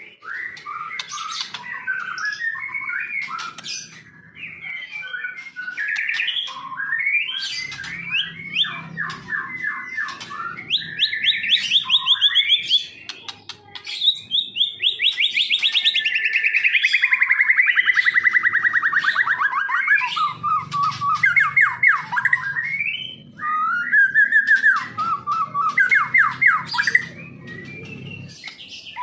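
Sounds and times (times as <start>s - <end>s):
songbird singing: 0.0s - 29.0s.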